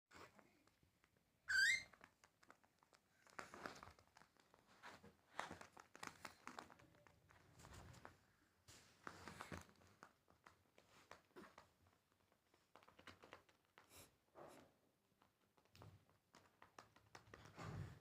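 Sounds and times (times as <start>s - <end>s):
cockatiel whistled call: 1.5s - 1.9s
rustling: 1.9s - 13.9s.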